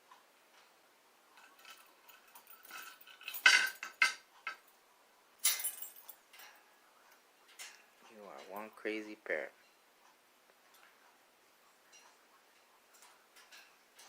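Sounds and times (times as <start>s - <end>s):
metal keys jingling: 1.4s - 4.6s, 5.4s - 6.6s.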